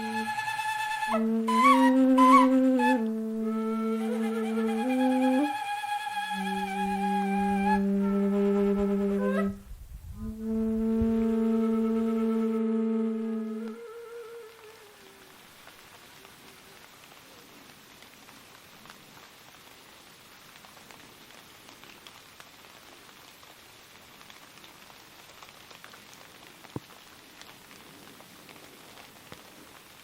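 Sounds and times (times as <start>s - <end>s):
light rain hiss: 0.0s - 30.0s
raindrop ticks: 3.0s - 3.4s, 13.4s - 30.0s.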